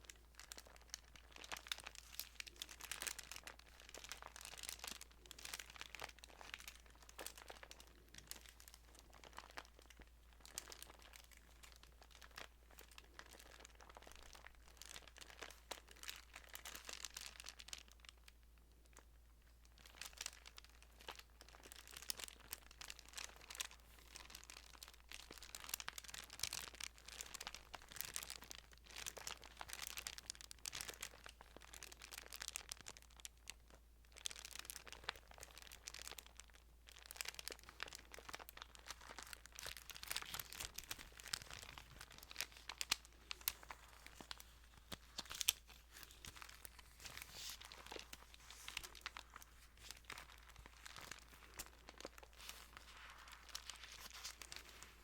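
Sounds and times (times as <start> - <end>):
thin paper pages rustling: 37.7 - 55.0.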